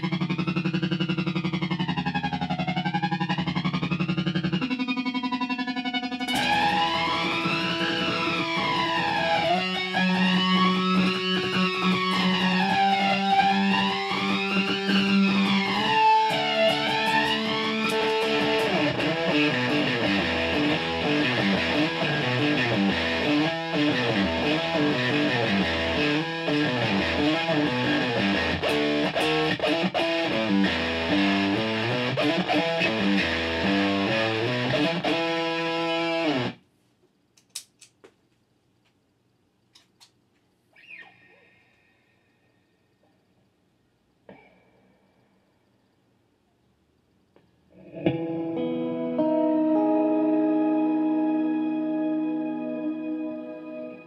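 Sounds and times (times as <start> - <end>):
electric guitar with effects: 0.0 - 36.6, 47.7 - 54.0.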